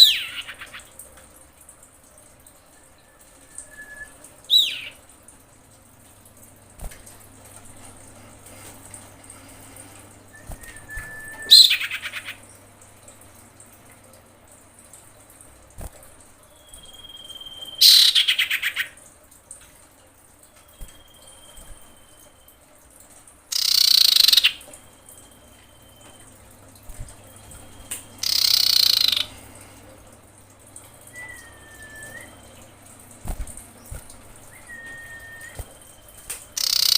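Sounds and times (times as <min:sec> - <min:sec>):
bird whistling and trilling: 0:03.0 - 0:05.0, 0:10.4 - 0:12.3, 0:16.6 - 0:18.9, 0:23.5 - 0:24.6, 0:27.6 - 0:29.3, 0:31.1 - 0:32.5, 0:34.5 - 0:36.9.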